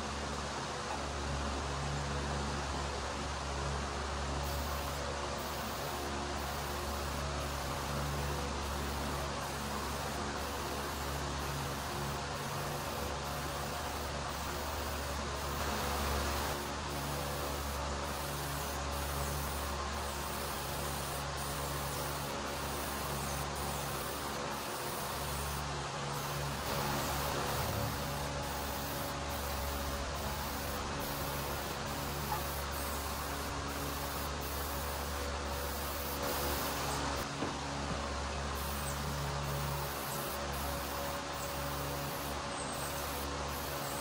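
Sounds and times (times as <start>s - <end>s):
electric motor running: 4.4s - 37.2s.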